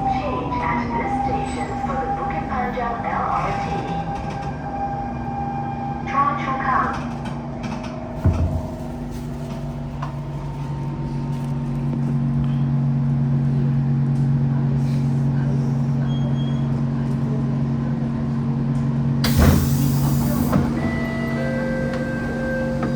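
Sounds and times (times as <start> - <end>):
train equipment humming: 19.2 - 22.9.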